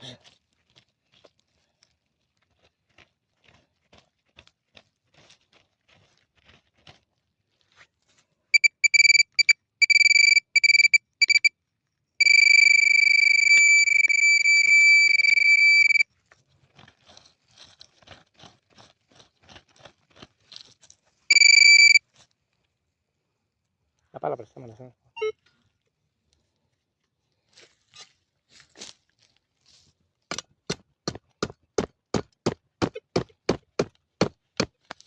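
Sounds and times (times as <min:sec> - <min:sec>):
ground crunching and ticking: 0:00.2 - 0:11.5, 0:12.2 - 0:22.7, 0:30.3 - 0:35.0
metal detector beeping tone: 0:08.6 - 0:11.5, 0:12.2 - 0:16.0, 0:21.3 - 0:22.0.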